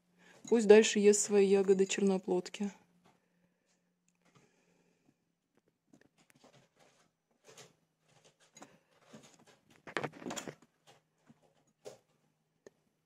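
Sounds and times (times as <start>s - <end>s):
bird rustling and tapping: 6.0s - 12.2s.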